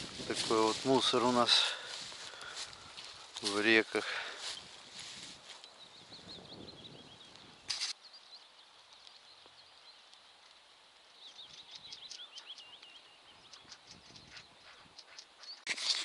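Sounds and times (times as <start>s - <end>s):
faint outdoor ambience: 0.0s - 16.0s
songbird warbling: 11.2s - 15.7s.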